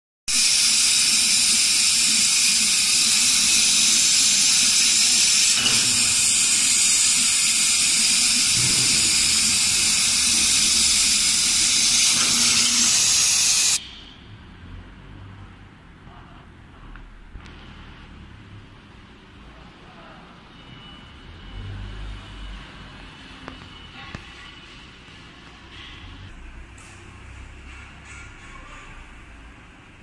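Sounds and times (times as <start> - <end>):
laser cutter air hiss: 0.3 - 13.8.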